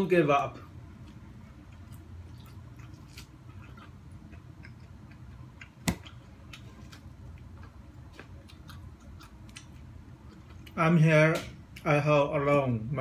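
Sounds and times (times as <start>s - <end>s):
person chewing corn: 1.0s - 10.8s.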